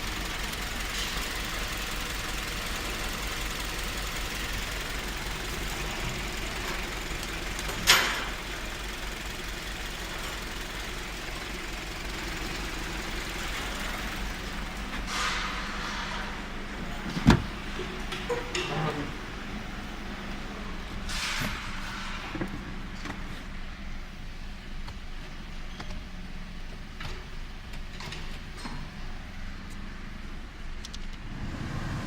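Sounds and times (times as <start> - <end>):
car engine idling: 0.0 - 21.1.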